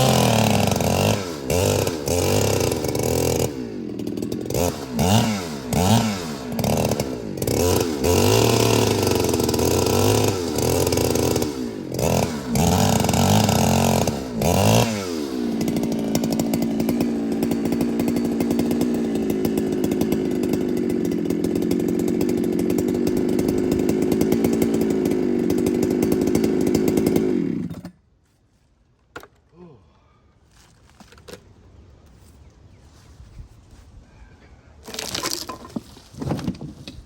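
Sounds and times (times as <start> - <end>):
chainsaw revving: 0.0 - 28.0, 34.9 - 35.8.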